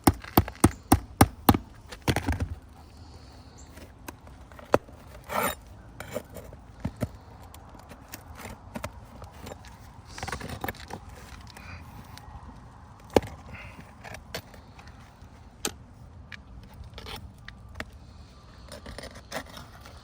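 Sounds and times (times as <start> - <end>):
hand tool scraping under shingles: 0.0 - 12.3, 17.9 - 20.0.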